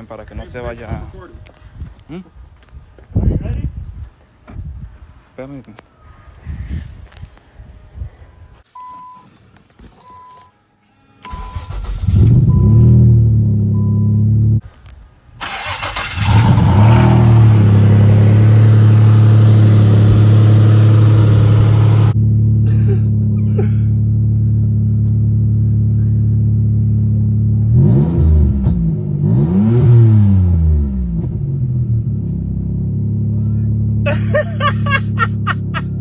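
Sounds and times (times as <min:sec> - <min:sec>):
turbocharged car engine revving: 0:11.3 - 0:14.6, 0:15.4 - 0:34.1.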